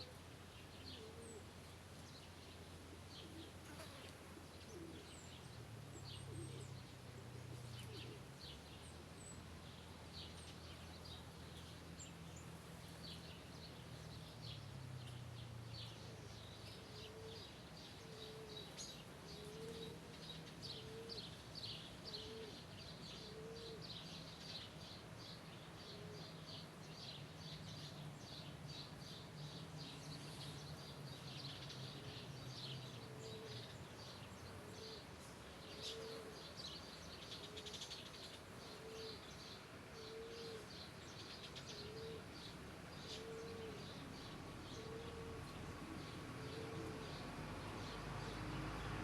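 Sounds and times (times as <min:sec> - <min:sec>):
birds chirping: 0:00.5 - 0:49.0.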